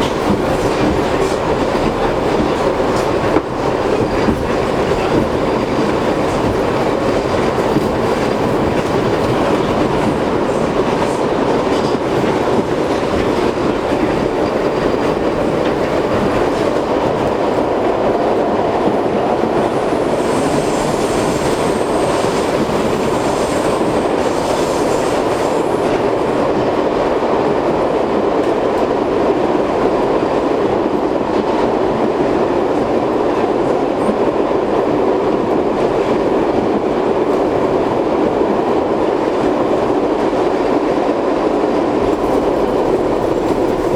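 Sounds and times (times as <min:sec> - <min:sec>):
rail joints clickety-clack: 0:00.0 - 0:43.9
subway train wheels rumbling: 0:00.0 - 0:43.9.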